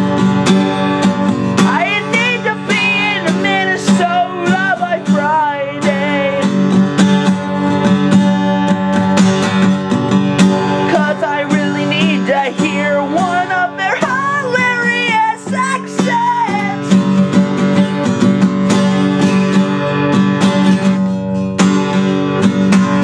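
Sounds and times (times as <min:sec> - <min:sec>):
acoustic guitar strummed: 0:00.0 - 0:23.0
person singing: 0:01.6 - 0:06.7, 0:10.8 - 0:18.0.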